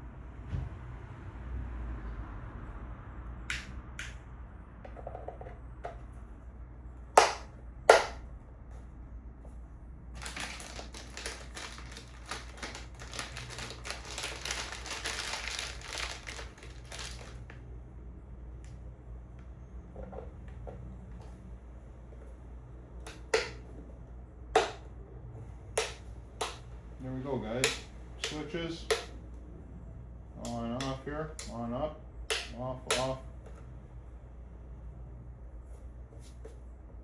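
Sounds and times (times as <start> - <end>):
loud sharp snaps: 3.5 - 4.2
rapid clicking and rattling: 10.2 - 17.4.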